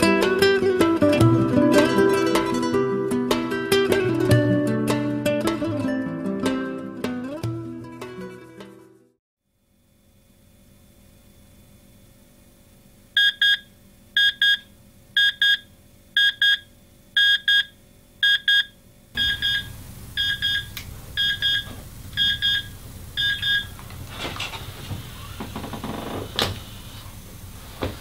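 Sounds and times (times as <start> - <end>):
digital alarm clock beeping: 13.2 - 13.6, 14.2 - 14.6, 15.2 - 15.6, 16.2 - 23.7.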